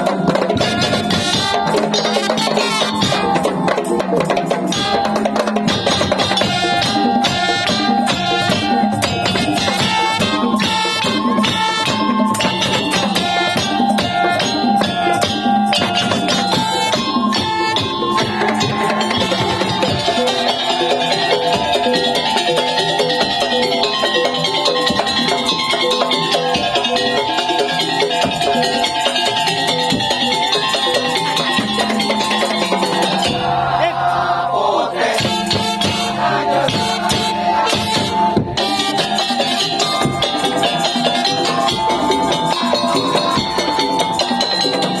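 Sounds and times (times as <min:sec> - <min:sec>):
percussion ensemble playing: 0:00.0 - 0:45.0.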